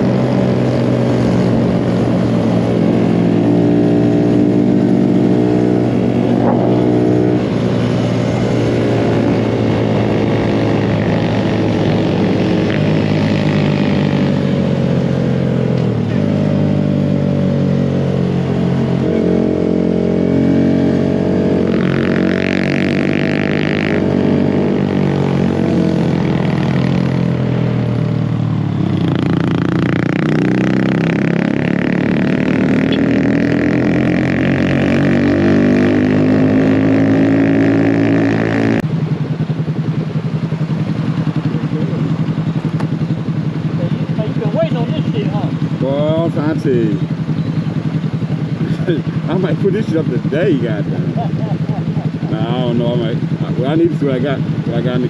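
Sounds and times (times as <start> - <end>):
mini bike engine revving: 18.9 - 27.4, 29.0 - 38.8.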